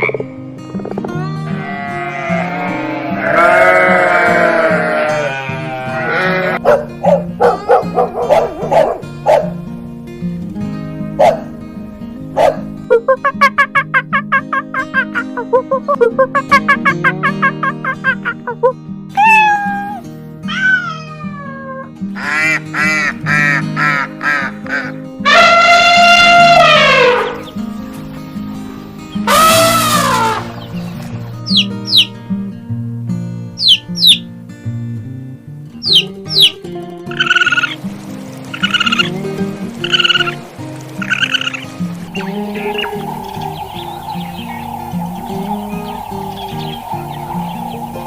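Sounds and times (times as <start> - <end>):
background music: 0.0 - 48.0
animal bleating: 1.2 - 6.6
dog barking: 6.6 - 9.6, 11.2 - 11.5, 12.4 - 12.7
cat meowing: 19.2 - 21.8.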